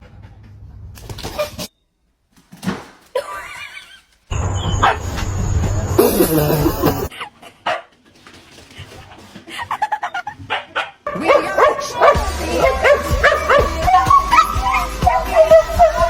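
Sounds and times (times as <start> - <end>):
dog barking and yipping: 4.5 - 5.2, 6.3 - 8.0, 9.8 - 16.0
music with steady bass: 11.8 - 16.0.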